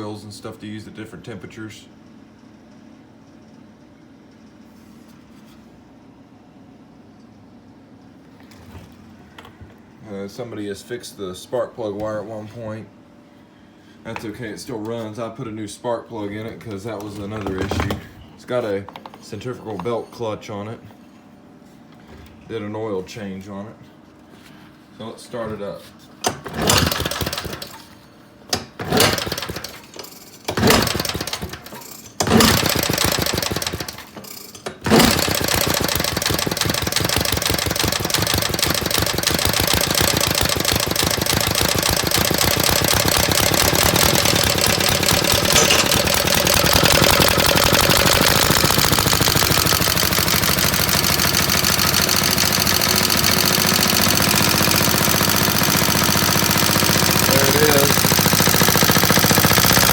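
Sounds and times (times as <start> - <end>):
small engine running: 26.2 - 27.9, 28.7 - 59.9
engine kick-start: 26.2 - 59.9.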